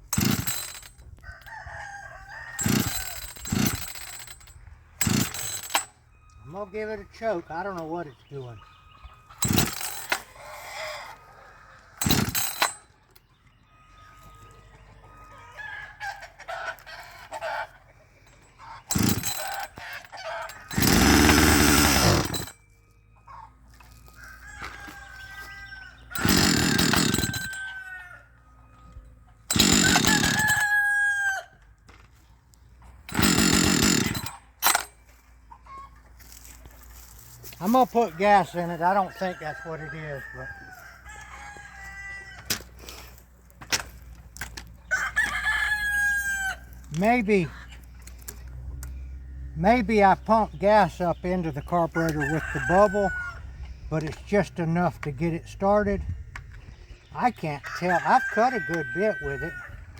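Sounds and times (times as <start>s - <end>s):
chainsaw starting and dying: 0.0s - 1.0s, 2.6s - 6.0s, 9.4s - 10.3s, 12.0s - 12.8s, 18.8s - 22.6s, 26.1s - 27.7s, 29.4s - 31.0s, 33.0s - 34.9s
rooster crowing: 1.2s - 3.1s, 24.0s - 28.4s, 29.6s - 31.6s, 37.7s - 42.6s, 44.8s - 46.8s, 51.9s - 53.6s, 57.6s - 59.9s
person talking: 37.6s - 40.4s, 46.9s - 47.6s, 49.6s - 53.1s, 53.9s - 56.1s, 57.1s - 59.6s.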